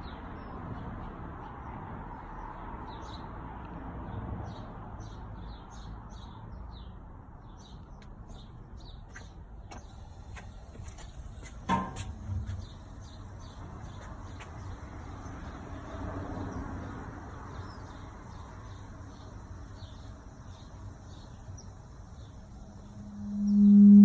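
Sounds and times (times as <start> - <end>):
burner igniting thud: 11.5 - 12.8
bird chirps: 12.4 - 24.0
faint high steady tone: 17.7 - 24.0
low steady rumble: 17.9 - 24.0.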